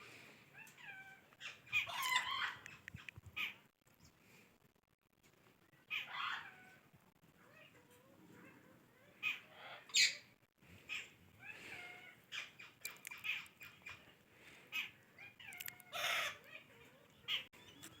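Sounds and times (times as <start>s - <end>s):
parakeet squawking: 1.4s - 2.8s.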